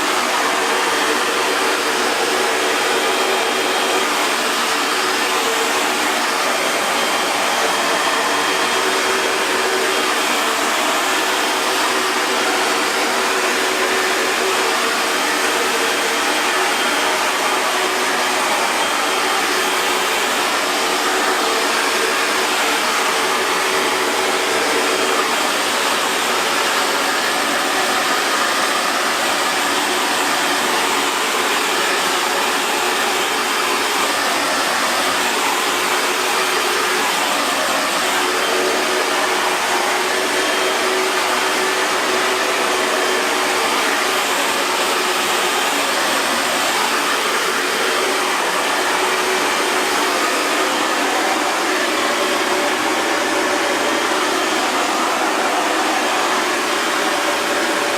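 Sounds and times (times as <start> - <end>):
hair dryer running: 0.0 - 57.9.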